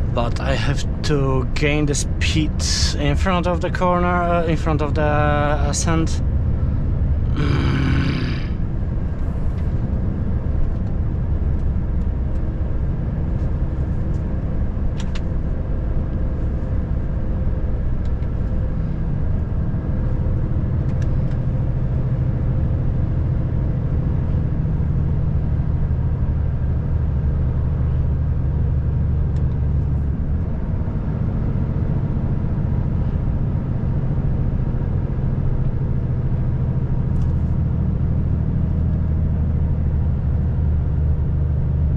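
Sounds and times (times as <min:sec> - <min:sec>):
truck diesel engine droning: 0:00.0 - 0:13.2
road noise: 0:00.0 - 0:41.9.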